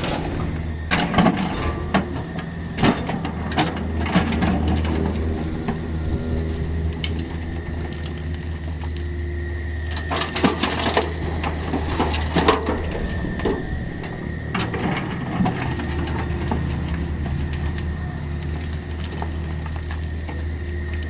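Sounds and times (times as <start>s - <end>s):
mini excavator running: 0.0s - 21.0s
thin high whine: 5.0s - 18.4s
bucket scraping soil and stones: 10.0s - 20.6s.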